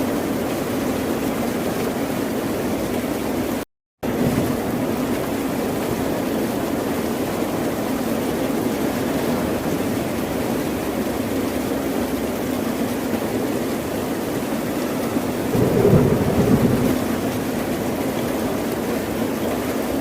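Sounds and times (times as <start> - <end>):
ocean surf washing: 15.5 - 18.4.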